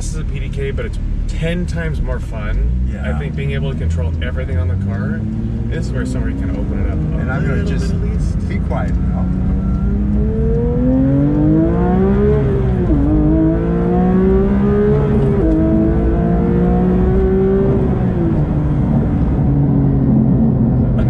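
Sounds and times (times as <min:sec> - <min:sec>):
car engine accelerating through gears: 0:00.0 - 0:21.0.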